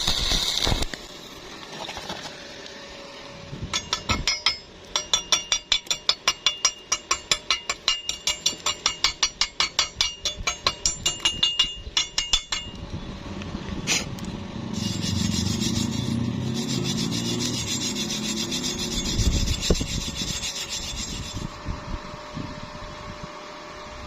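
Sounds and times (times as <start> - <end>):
wire brush scrubbing metal: 14.7 - 21.6.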